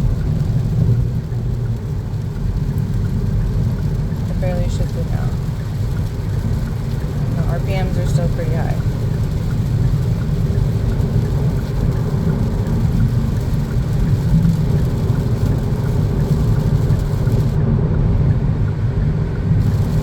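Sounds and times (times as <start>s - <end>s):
car engine droning at high revs: 0.0s - 20.0s
road noise: 0.0s - 20.0s.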